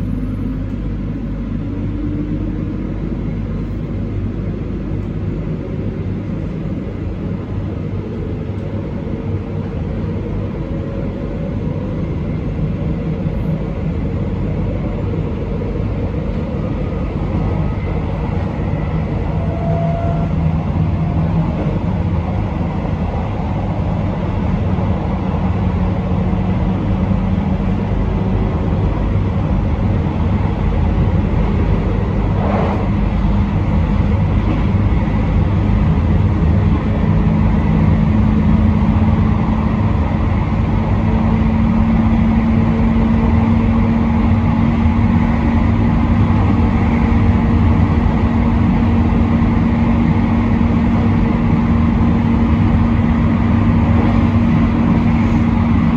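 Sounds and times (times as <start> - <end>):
train rumbling on rails: 0.0 - 55.9
train motor hum rising in pitch: 17.3 - 22.0, 31.4 - 36.2.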